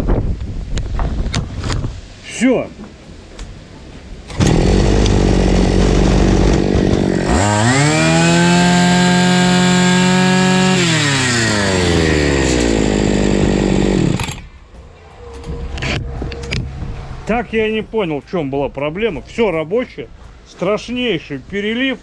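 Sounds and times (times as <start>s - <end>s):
brush cutter engine revving: 4.3s - 14.5s.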